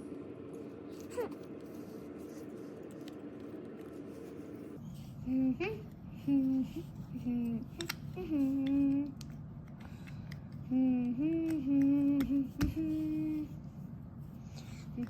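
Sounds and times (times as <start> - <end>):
person humming a tune: 5.2 - 9.2, 10.6 - 13.6.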